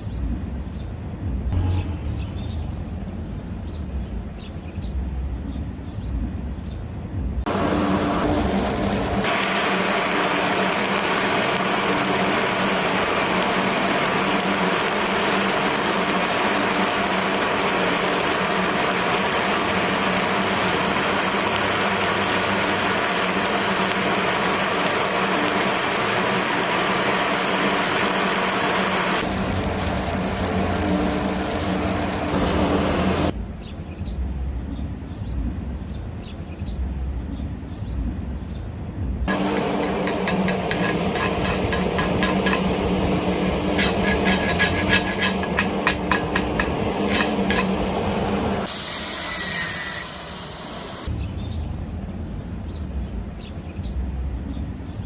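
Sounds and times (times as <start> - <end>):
low hum: 7.1 - 33.6, 36.8 - 48.7
welding arc crackling and hissing: 7.5 - 33.4, 39.3 - 51.1.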